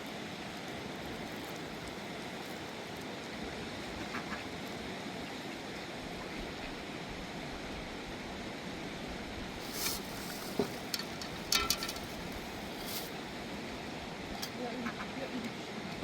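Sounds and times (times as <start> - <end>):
river water rushing: 9.5 - 14.3
clicks and scrapes: 9.7 - 13.2.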